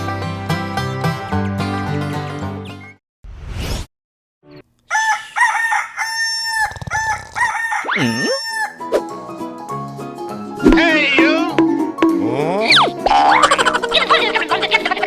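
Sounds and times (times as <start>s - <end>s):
rooster crowing: 4.9s - 8.8s.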